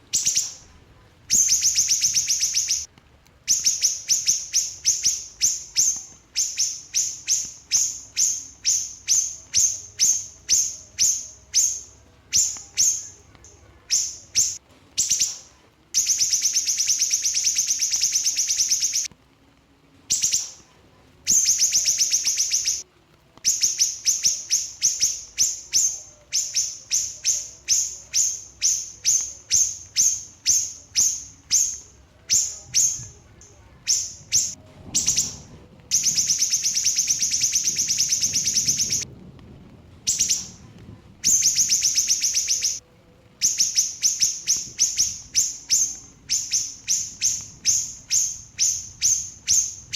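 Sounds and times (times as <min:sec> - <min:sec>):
small bird trilling and chirping: 0:00.1 - 0:02.9, 0:03.5 - 0:13.3, 0:13.9 - 0:19.1, 0:20.1 - 0:20.6, 0:21.3 - 0:22.8, 0:23.5 - 0:33.2, 0:33.8 - 0:39.0, 0:40.1 - 0:40.6, 0:41.2 - 0:42.8, 0:43.4 - 0:49.9.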